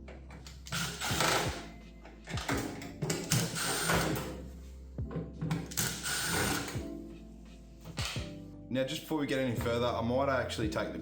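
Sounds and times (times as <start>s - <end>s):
faint background music: 0.0s - 11.0s
power screwdriver removing screws: 0.6s - 1.6s, 5.7s - 6.8s.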